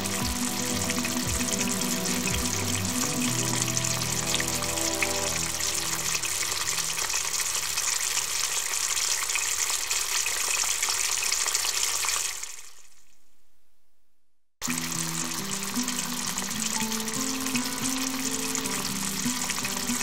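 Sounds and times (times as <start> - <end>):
soft background music: 0.0 - 7.4, 14.7 - 20.0
vegetables sizzling in frying pan: 0.0 - 12.4, 14.6 - 20.0.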